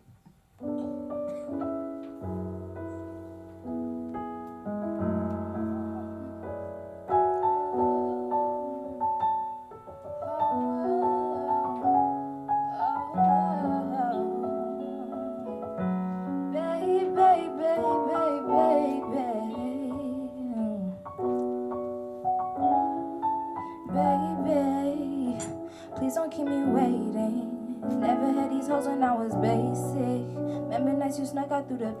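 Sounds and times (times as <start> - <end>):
electric piano chords and melody: 0.6 - 32.0.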